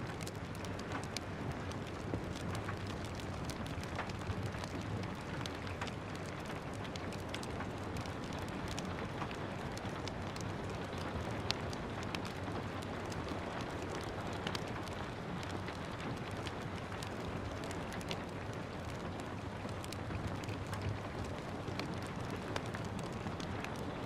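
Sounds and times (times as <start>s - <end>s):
steady rain: 0.0s - 24.0s
wood fire crackling and popping: 0.0s - 24.0s.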